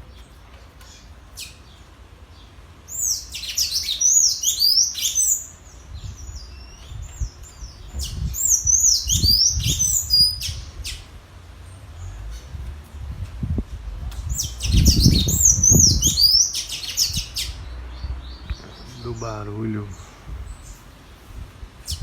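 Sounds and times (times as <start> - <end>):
low thumps: 11.7 - 16.2
tanager singing squeaky notes: 14.2 - 20.0.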